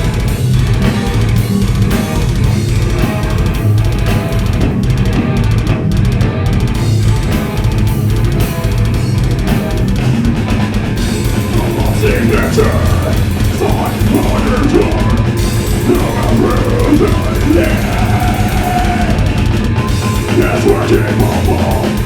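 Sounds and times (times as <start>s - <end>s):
heavy metal band playing live: 0.0s - 22.0s
wavering pitched line: 10.8s - 22.0s.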